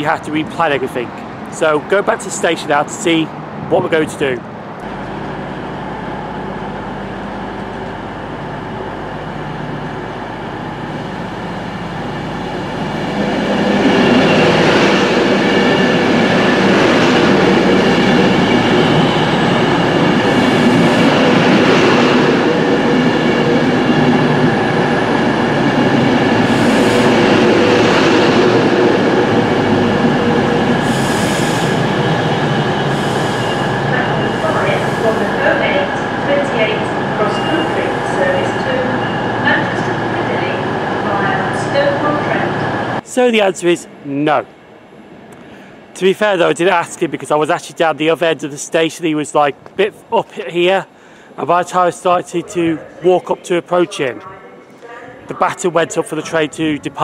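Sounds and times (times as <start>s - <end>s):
electric train pulling in: 0.6s - 47.1s
squealing wheels and brakes: 30.8s - 35.4s.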